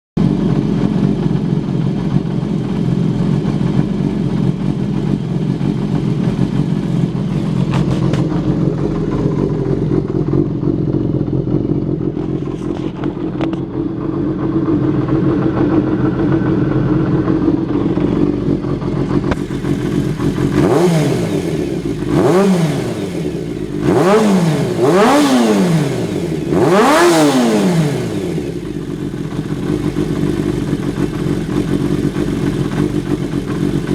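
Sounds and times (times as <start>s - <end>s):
motorcycle engine idling: 0.2s - 33.9s
engine revving: 19.2s - 33.9s.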